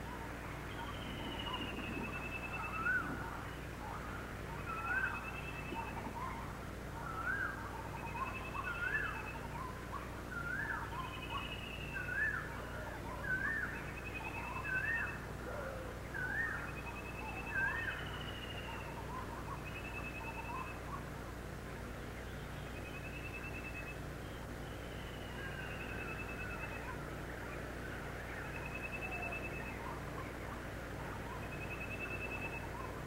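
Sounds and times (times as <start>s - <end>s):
steady low hum: 0.0s - 33.0s
bird high trills: 28.4s - 33.0s.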